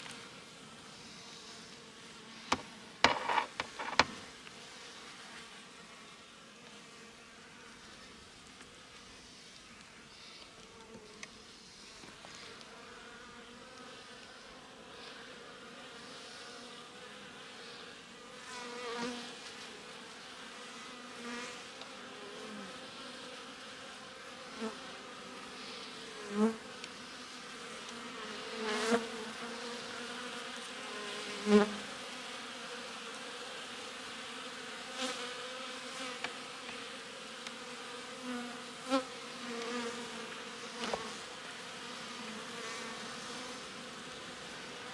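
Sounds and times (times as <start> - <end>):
single bee buzzing close: 1.1 - 4.4, 12.7 - 44.9
bees humming in hive: 10.0 - 44.9.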